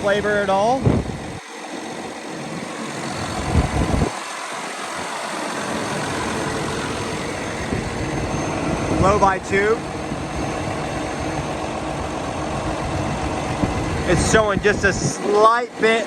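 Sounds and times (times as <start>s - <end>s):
diesel truck engine idling: 4.8s - 16.0s.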